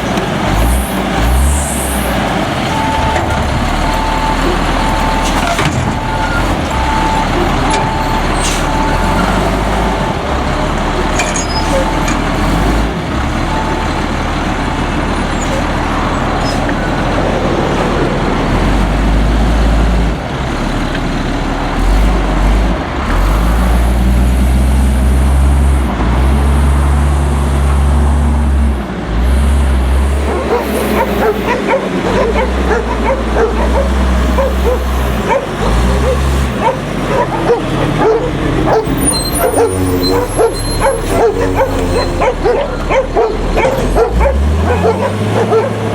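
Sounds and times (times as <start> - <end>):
garbage truck diesel engine: 0.0 - 45.9
dog barking: 30.2 - 45.9.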